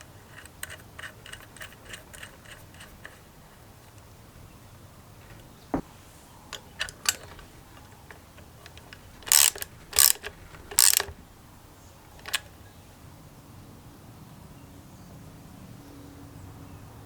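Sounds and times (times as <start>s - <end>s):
metal tool clicks: 0.0s - 3.3s, 6.5s - 11.2s, 12.2s - 12.5s
loud rasping bursts: 9.1s - 11.2s.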